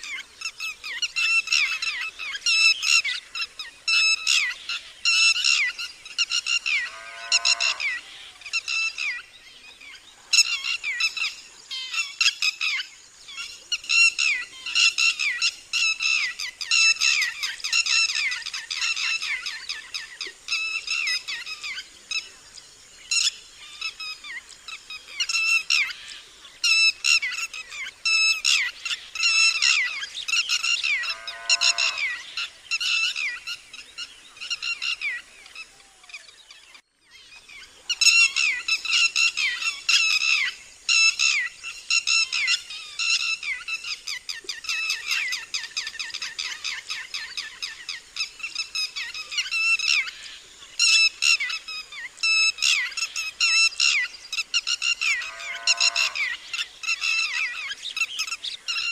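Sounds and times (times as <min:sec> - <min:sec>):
lower curving bird call: 0:53.8 - 0:57.7.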